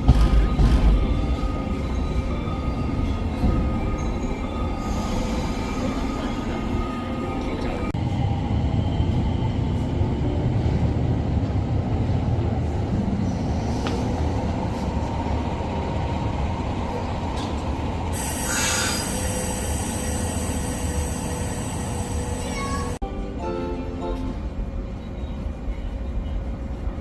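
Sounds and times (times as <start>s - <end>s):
train wheels rumbling on rails: 0.0s - 23.0s
sharp hiss: 18.2s - 21.8s.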